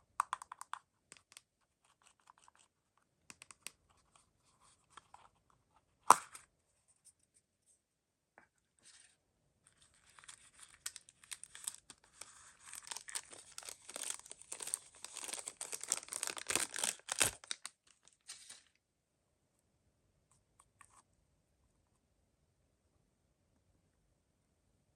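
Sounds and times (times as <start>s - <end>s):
packaging tearing and crinkling: 10.0s - 18.7s.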